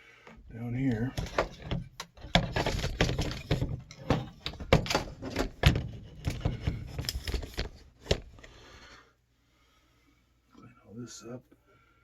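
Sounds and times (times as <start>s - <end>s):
metal knocks and clicks: 0.9s - 8.4s.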